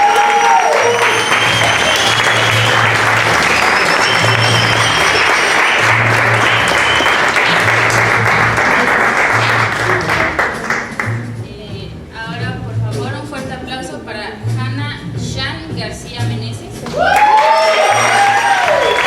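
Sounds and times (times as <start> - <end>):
audience applauding: 0.0 - 11.2, 16.9 - 19.0
background music: 0.0 - 19.0.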